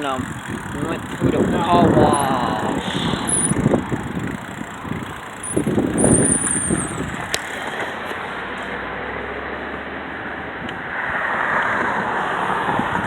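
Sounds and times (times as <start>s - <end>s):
wind buffeting microphone: 0.2s - 7.6s, 10.5s - 13.0s.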